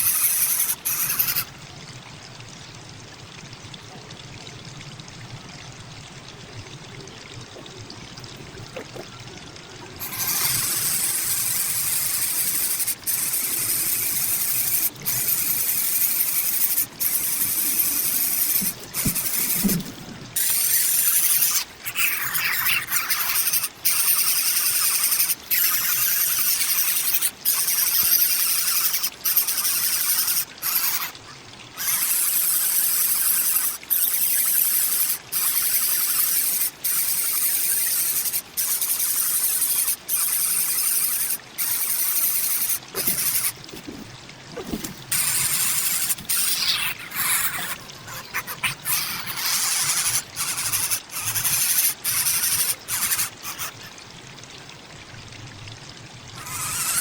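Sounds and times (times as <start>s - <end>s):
loud harsh hissing: 10.0s - 19.7s, 56.4s - 57.0s.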